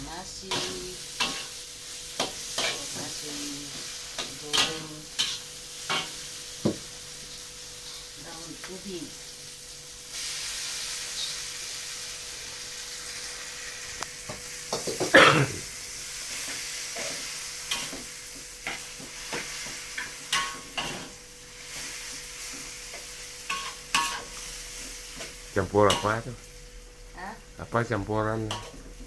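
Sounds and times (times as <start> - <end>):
rice sizzling in a hot pan: 0.0 - 29.0.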